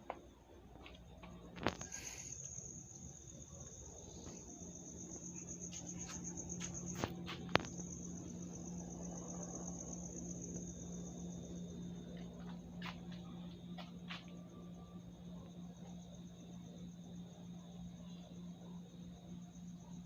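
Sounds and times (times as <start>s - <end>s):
low steady hum: 0.0s - 20.0s
insect trilling: 1.5s - 12.0s.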